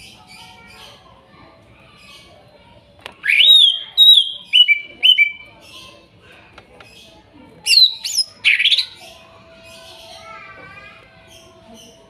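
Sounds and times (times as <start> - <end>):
faint background chirping: 0.0 - 12.0
bird whistling: 3.2 - 5.4, 7.7 - 8.9.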